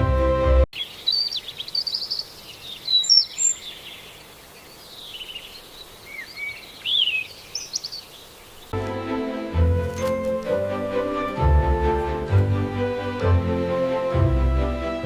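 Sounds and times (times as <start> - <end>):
birds chirping and singing: 0.8 - 8.8
faint steady hiss: 0.8 - 9.2.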